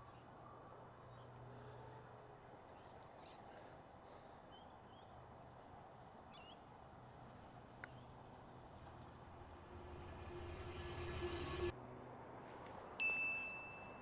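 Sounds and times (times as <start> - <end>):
low steady hum: 8.2 - 11.7.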